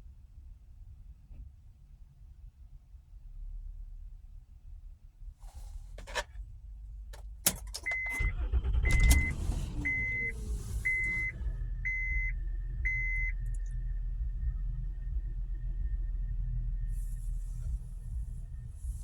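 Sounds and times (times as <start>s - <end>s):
car engine starting and idling: 5.4s - 19.0s
dashboard warning chime: 7.8s - 13.6s.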